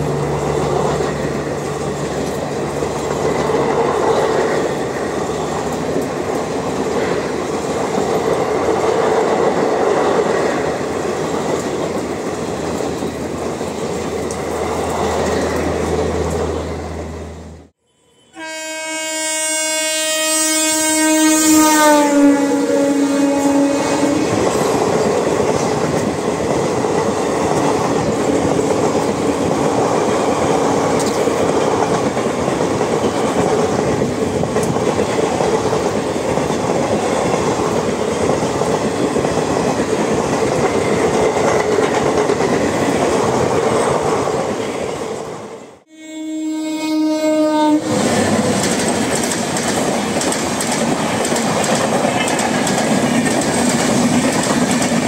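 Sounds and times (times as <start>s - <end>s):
train coaches rushing past: 0.0s - 17.7s, 21.5s - 45.8s, 47.5s - 55.0s
train horn: 16.8s - 24.6s, 45.8s - 48.2s.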